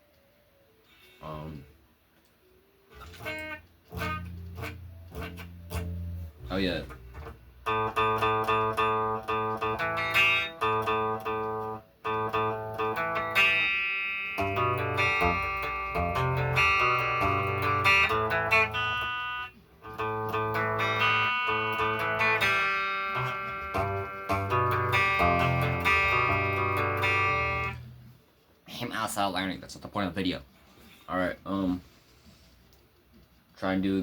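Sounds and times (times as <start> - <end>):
guitar riff: 2.9 - 28.2.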